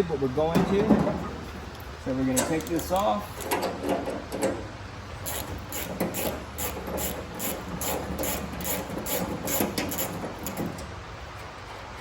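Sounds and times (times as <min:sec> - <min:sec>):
ratchet wrench rasping: 0:05.2 - 0:10.7.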